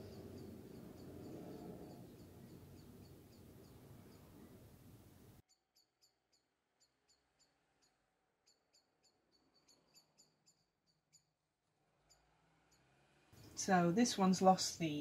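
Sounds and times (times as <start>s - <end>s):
faint high bird chirps: 0.0s - 4.6s, 5.5s - 11.4s
low hiss: 0.0s - 5.4s.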